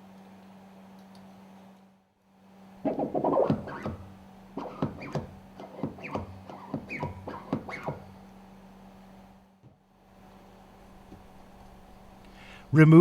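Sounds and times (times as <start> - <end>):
steady low hum: 0.0 - 13.0
hand tools scraping metal: 4.6 - 8.1.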